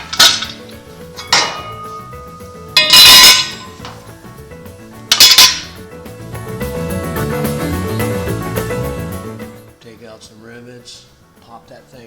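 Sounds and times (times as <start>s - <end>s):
loud metal clangs: 0.0s - 4.1s, 5.1s - 5.8s
background music: 0.0s - 12.0s.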